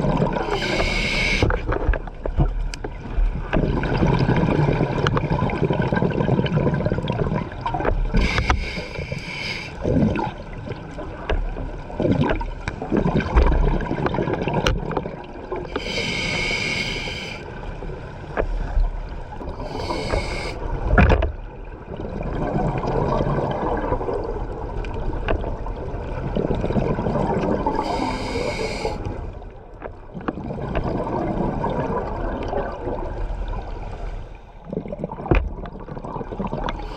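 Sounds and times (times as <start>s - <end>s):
bubbling exhales: 0.1s - 1.6s, 19.6s - 20.6s, 27.2s - 29.1s
regulator hissing inhales: 0.4s - 1.6s, 8.2s - 9.8s, 15.7s - 17.4s, 19.6s - 20.6s, 27.8s - 29.2s.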